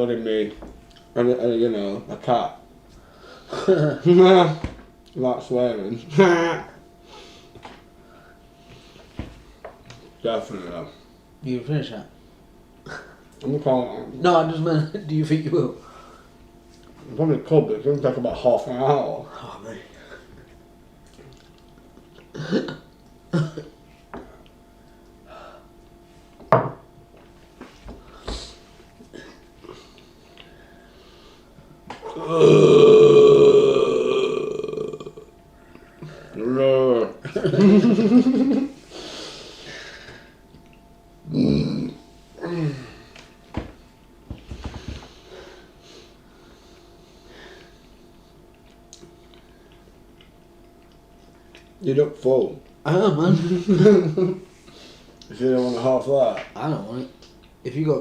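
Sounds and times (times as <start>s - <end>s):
quiet breathing: 7.0s - 9.2s, 15.8s - 16.4s, 29.6s - 31.8s, 38.8s - 40.4s, 44.4s - 48.1s
man burping: 12.8s - 13.2s, 22.2s - 23.8s, 32.0s - 35.3s, 41.2s - 43.0s.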